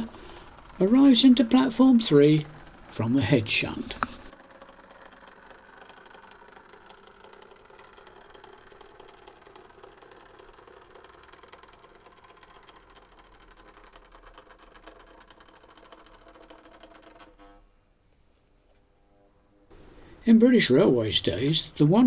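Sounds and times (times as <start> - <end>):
wheels and gears rattling: 0.0 - 17.4
model train motor whirring: 0.0 - 17.7.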